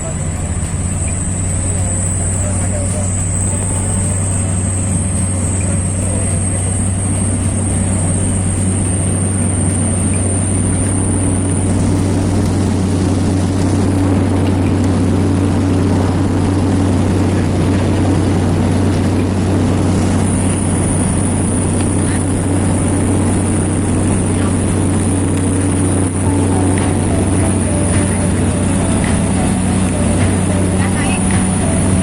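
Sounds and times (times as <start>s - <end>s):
propeller plane engine drone: 0.0s - 32.0s
thin high whine: 0.0s - 32.0s.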